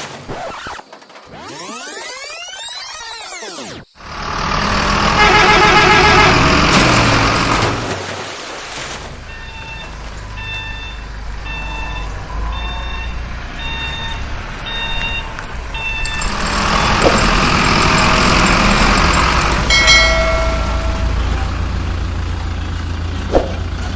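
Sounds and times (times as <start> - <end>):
reversing alarm beeping: 9.3 - 21.8
low engine rumble: 14.6 - 23.9.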